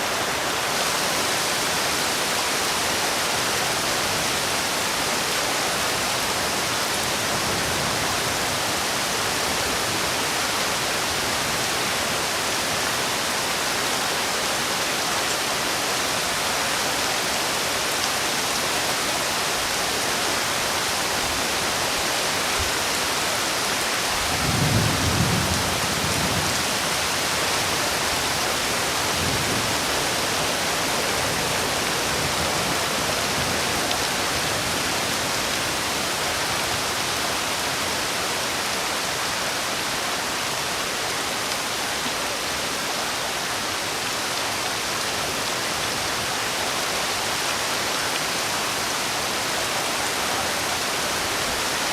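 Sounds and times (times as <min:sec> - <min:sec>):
heavy rain falling: 0:00.0 - 0:51.9.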